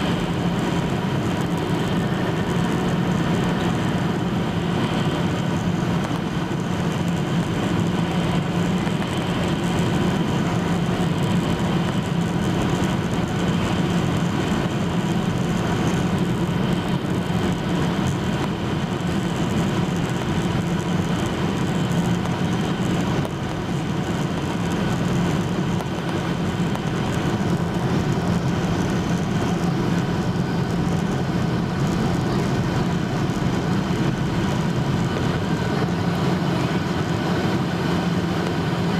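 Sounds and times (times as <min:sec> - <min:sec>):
airplane cabin drone: 0:00.0 - 0:38.9.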